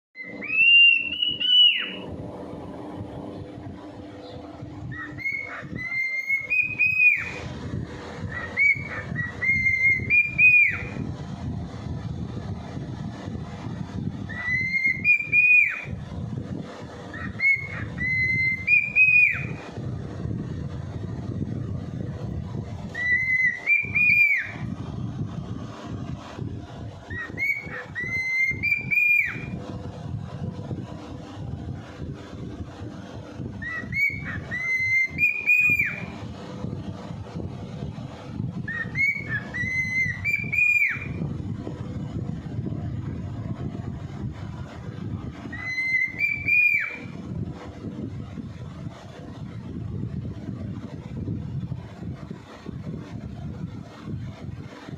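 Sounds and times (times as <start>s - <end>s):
cockatiel whistling: 0.2s - 2.0s, 4.9s - 7.4s, 8.3s - 11.0s, 14.3s - 15.9s, 17.1s - 19.6s, 22.9s - 24.6s, 27.1s - 29.6s, 33.6s - 36.1s, 38.7s - 41.2s, 45.5s - 47.1s
steady low rumble: 0.2s - 54.9s.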